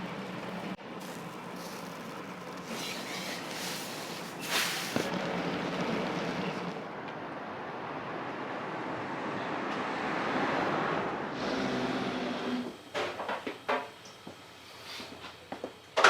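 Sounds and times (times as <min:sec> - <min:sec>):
food sizzling on griddle: 0:00.4 - 0:05.1
metal spatulas scraping griddle: 0:02.6 - 0:05.1.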